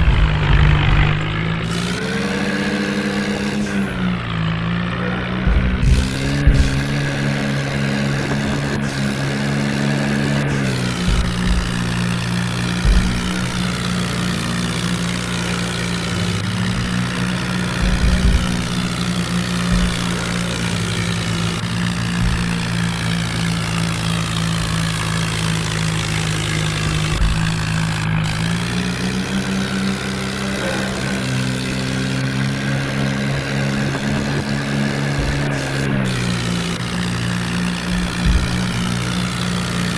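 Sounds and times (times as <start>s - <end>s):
low thumps: 0.0s - 39.9s
tractor diesel engine running: 0.0s - 39.9s.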